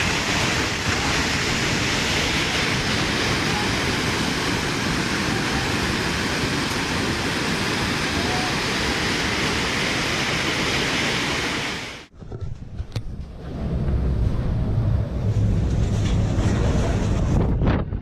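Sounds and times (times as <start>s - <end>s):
floodwater rushing: 0.0s - 12.1s.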